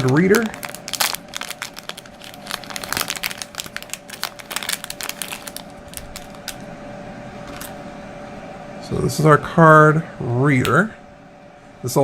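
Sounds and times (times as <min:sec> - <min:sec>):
plastic packaging crinkling: 0:00.0 - 0:06.7
steady hum: 0:00.0 - 0:12.0.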